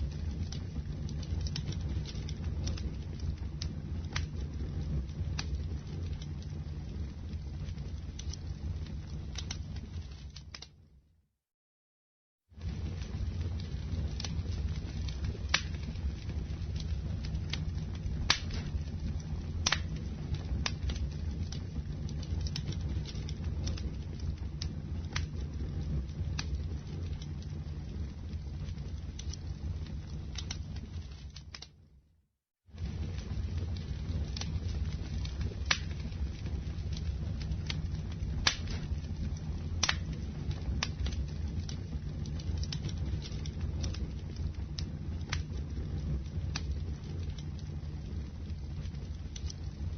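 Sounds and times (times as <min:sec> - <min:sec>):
campfire crackling and popping: 0:00.0 - 0:10.9, 0:12.6 - 0:31.9, 0:32.7 - 0:49.9
low fire rumble: 0:00.0 - 0:11.1, 0:12.4 - 0:32.0, 0:32.6 - 0:49.9.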